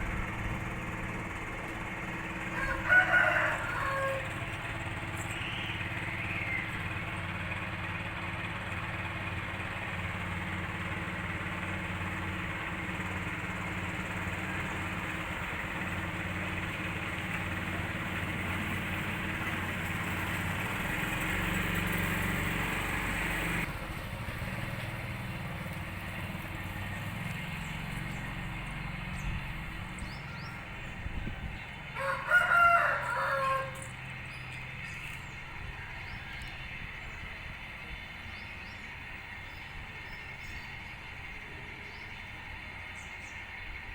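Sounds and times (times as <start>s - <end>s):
rooster crowing: 2.2s - 5.3s, 30.1s - 36.8s.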